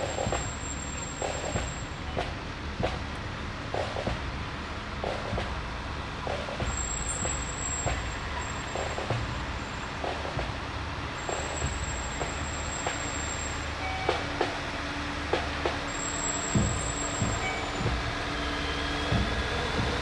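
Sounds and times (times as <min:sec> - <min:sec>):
fire truck engine rumbling: 0:00.0 - 0:20.0
thin high whistle: 0:15.9 - 0:19.9.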